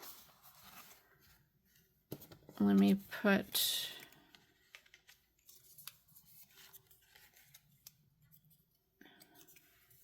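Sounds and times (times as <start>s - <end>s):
paper rustling: 0.0s - 10.0s.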